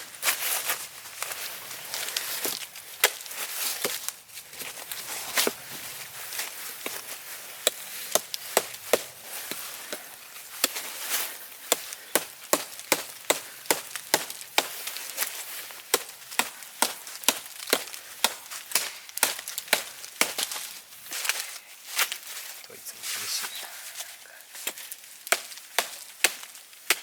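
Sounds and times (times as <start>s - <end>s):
wood chopping strikes: 2.1s - 5.7s, 6.4s - 20.8s, 24.6s - 27.0s.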